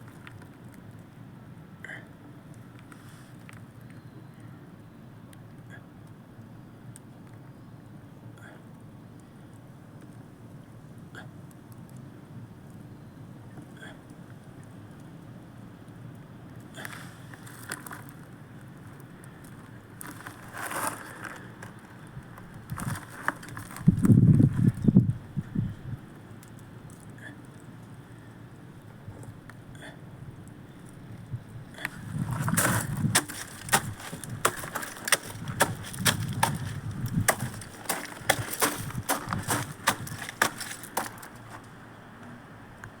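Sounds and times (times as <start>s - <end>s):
low rumble of flame: 0.0s - 43.0s
bonfire crackling: 14.1s - 23.2s
bonfire crackling and popping: 14.3s - 23.6s, 30.4s - 41.8s.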